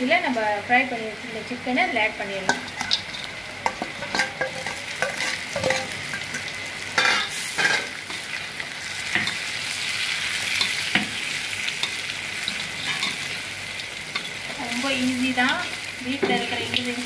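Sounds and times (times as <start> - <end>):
chicken frying in a wok: 0.0 - 17.0
spatula scraping and knocking pan: 2.4 - 8.2, 16.1 - 16.8.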